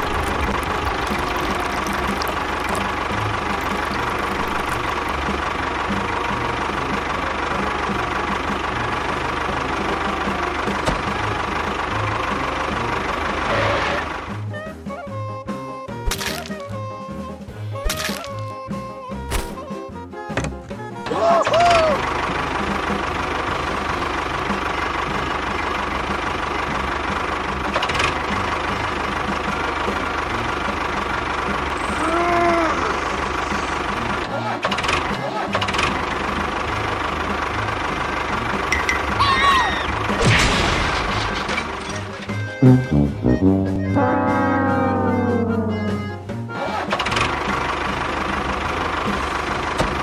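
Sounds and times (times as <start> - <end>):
engine idling: 0.0 - 14.9, 21.6 - 42.5, 46.8 - 50.0.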